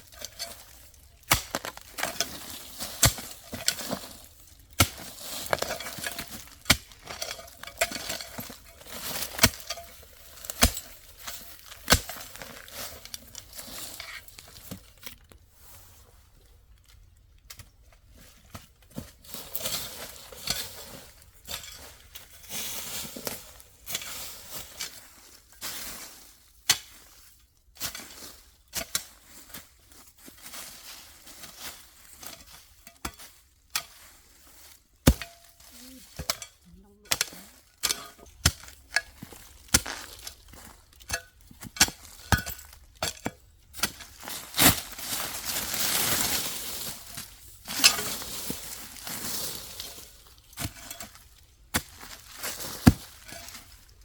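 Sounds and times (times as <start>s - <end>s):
small hard objects clinking: 0.0s - 14.6s, 35.0s - 54.0s.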